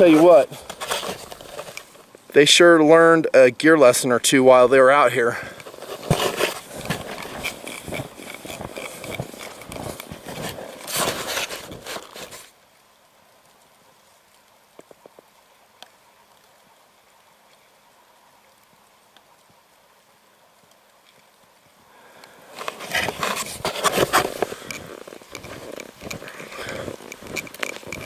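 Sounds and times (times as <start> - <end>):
footsteps crunching in snow: 0.0 - 2.2, 5.4 - 12.5, 22.4 - 28.0
faint clicks: 22.1 - 22.8.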